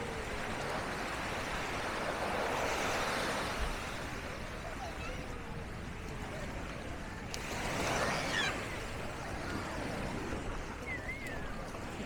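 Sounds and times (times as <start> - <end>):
surf washing: 0.0 - 12.0
faint voices of people: 3.8 - 12.0.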